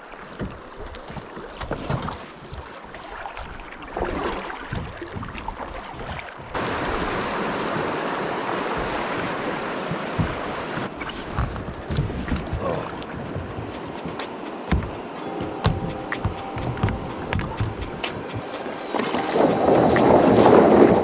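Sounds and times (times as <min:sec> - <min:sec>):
river water rushing: 0:02.3 - 0:21.0
wind on microphone: 0:06.0 - 0:15.0, 0:15.7 - 0:21.0.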